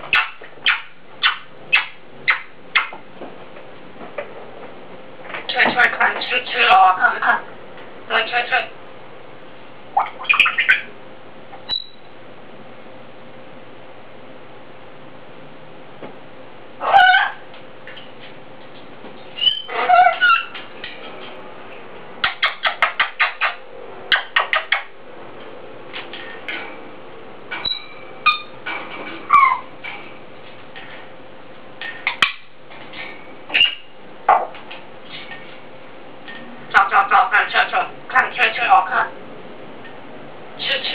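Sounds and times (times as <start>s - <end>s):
parrot whistling and clicking: 0.0s - 3.0s, 10.0s - 10.9s, 11.7s - 12.0s, 19.4s - 21.0s, 22.2s - 24.9s, 27.5s - 28.6s, 29.3s - 29.7s, 31.8s - 32.5s, 33.5s - 33.9s.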